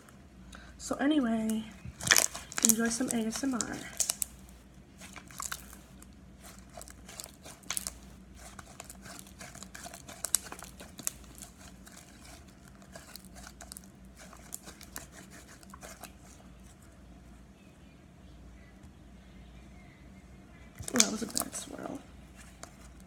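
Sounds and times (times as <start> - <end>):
sticky slime clicks and crackles: 1.4 - 4.4, 5.0 - 16.2, 20.8 - 21.8.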